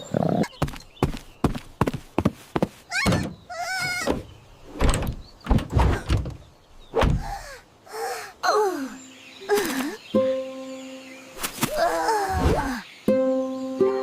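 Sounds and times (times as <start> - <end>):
knocks and thuds: 4.0 - 7.3.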